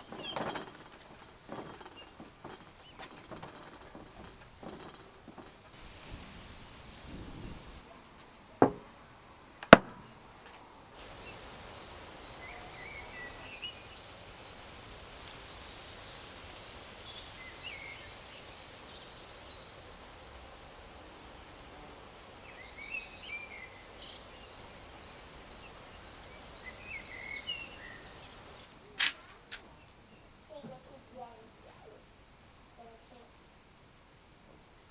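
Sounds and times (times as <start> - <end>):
sharp knocks: 0.0 - 5.8, 8.6 - 8.9, 9.6 - 10.2
insects trilling: 0.0 - 34.9.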